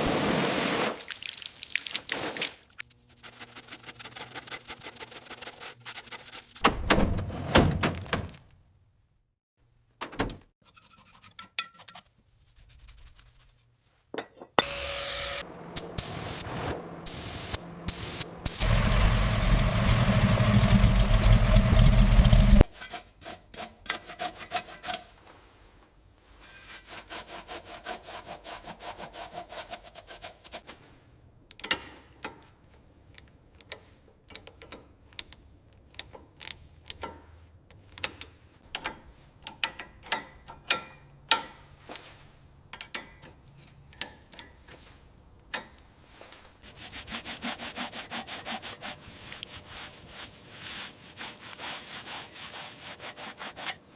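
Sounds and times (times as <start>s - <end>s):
rubbing or scraping strokes: 2.1s - 6.6s, 10.6s - 14.1s, 15.9s - 30.7s, 46.0s - 53.9s
loud rushing noise: 15.4s - 22.6s.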